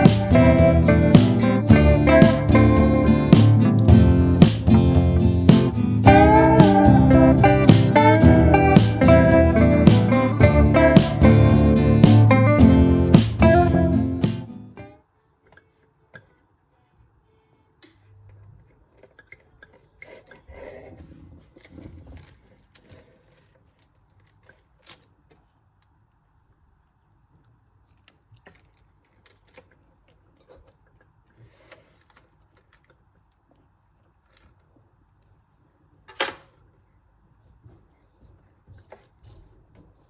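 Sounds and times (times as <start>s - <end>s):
faint small clicks and rustles: 21.4s - 40.0s.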